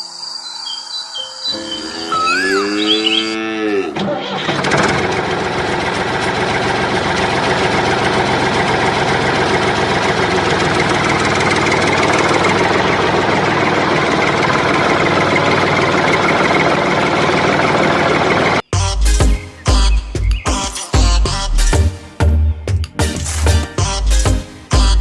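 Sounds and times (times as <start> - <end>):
engine idling with low knock: 4.3 - 18.6.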